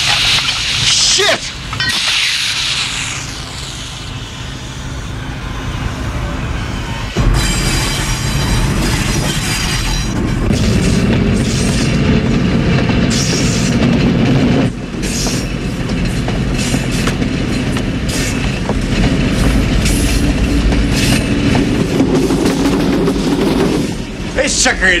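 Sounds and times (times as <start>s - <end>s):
diesel locomotive engine drone: 0.0s - 25.0s
wheels clattering over track: 7.2s - 24.7s.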